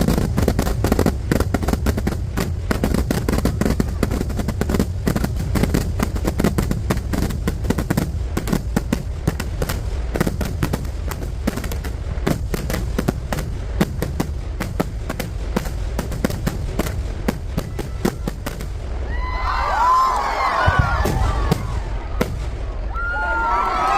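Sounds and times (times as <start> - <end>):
firecracker blasts: 0.0 - 23.9
crowd cheering and shouting: 3.3 - 4.3, 17.6 - 23.9.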